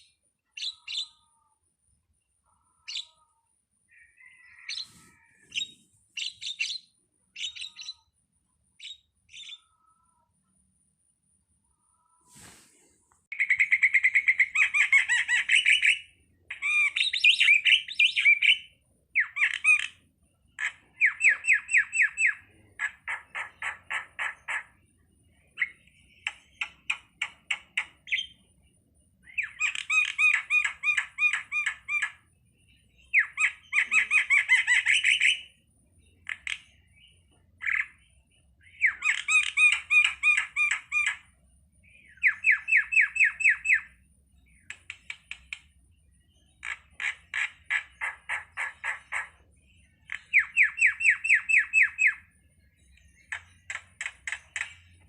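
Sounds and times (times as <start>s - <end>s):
starling calling: 0.0s - 1.5s, 2.7s - 3.3s, 3.9s - 8.1s, 12.2s - 20.0s, 33.0s - 35.6s, 36.2s - 41.3s, 42.0s - 44.0s, 46.6s - 49.4s.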